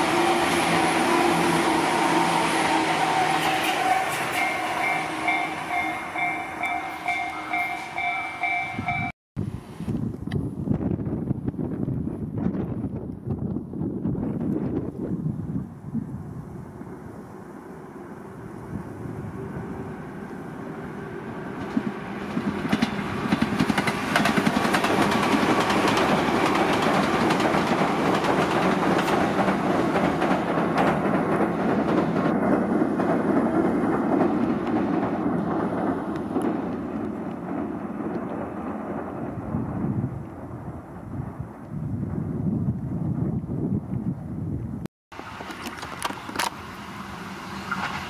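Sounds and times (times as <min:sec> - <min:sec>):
electric train running past: 0:00.0 - 0:09.1, 0:15.4 - 0:43.5, 0:45.2 - 0:48.0.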